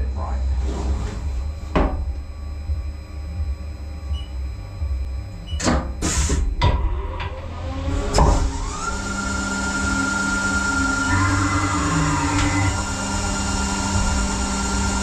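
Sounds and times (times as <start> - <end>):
machine clunks and clatter: 5.5 - 7.4, 8.0 - 8.6
lathe spindle whine: 6.9 - 15.0.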